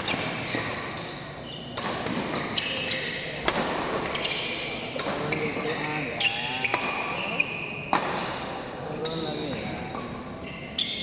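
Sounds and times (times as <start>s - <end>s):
sneakers squeaking on court: 0.0s - 3.3s, 3.9s - 8.0s, 9.0s - 11.0s
rackets striking shuttlecock: 1.7s - 5.8s, 6.4s - 10.4s.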